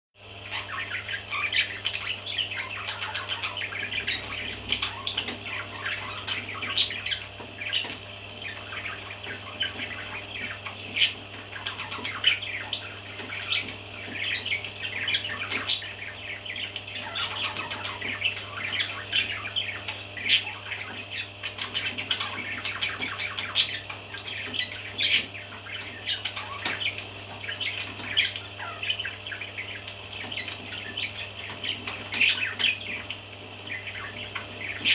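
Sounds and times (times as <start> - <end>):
baby parrots squawking: 0.5 - 34.9.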